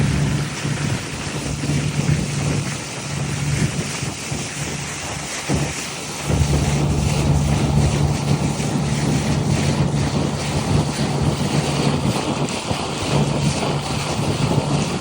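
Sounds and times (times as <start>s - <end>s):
boat motor humming: 0.0s - 15.0s
water rushing along hull: 0.0s - 15.0s
wind buffeting microphone: 0.0s - 15.0s.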